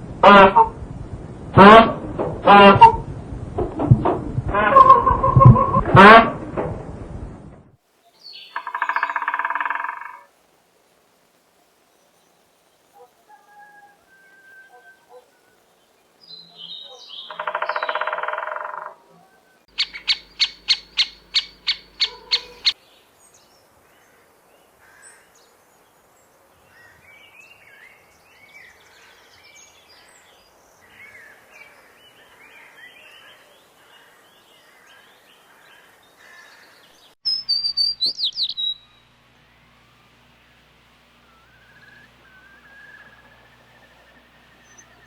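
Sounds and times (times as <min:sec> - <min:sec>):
birds chirping: 0:08.1 - 0:10.2, 0:11.9 - 0:22.8, 0:36.3 - 0:45.0
sharp high-pitched bird calls: 0:08.2 - 0:10.2, 0:16.6 - 0:18.9, 0:19.7 - 0:22.8, 0:37.2 - 0:39.1
high calls falling in pitch: 0:08.5 - 0:10.2, 0:19.7 - 0:22.8.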